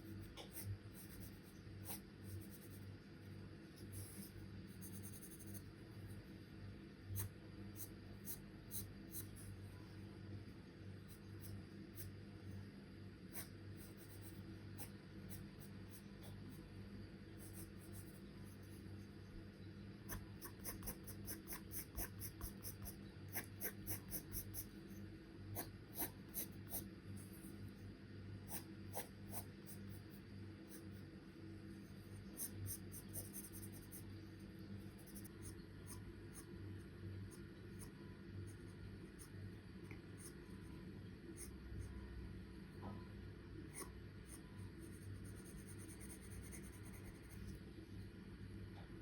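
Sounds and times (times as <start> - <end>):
low steady hum: 0.0 - 49.0
pencil scratching on paper: 0.4 - 2.8, 3.8 - 5.7, 20.1 - 24.7, 32.2 - 34.0, 43.8 - 47.6.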